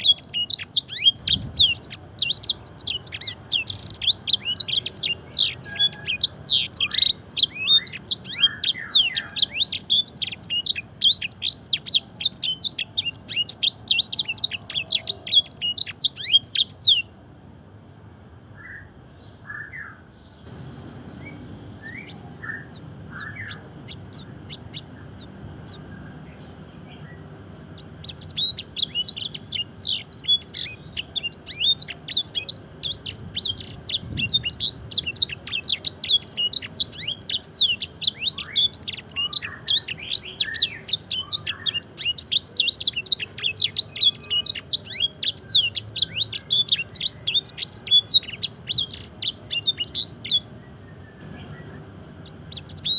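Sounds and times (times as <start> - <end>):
canary singing: 0.0 - 17.2, 18.6 - 52.9.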